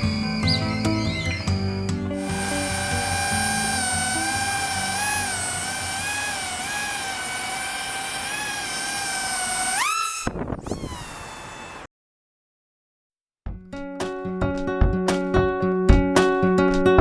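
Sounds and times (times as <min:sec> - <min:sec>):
quadcopter motors whining: 0:00.0 - 0:11.9.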